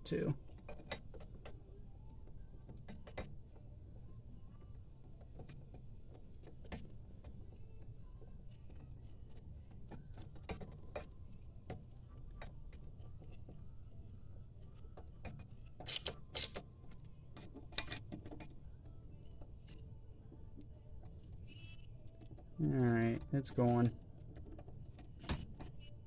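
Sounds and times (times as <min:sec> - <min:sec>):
metallic clicks of hand tools: 0:15.8 - 0:16.6.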